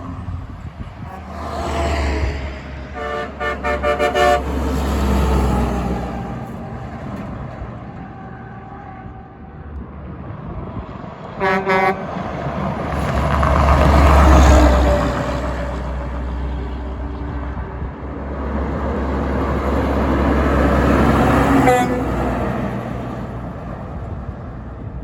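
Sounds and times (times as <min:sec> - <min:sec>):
heavy truck engine rumble: 0:00.0 - 0:25.0
truck horn blasts: 0:01.0 - 0:05.4, 0:11.4 - 0:12.4, 0:21.0 - 0:22.8.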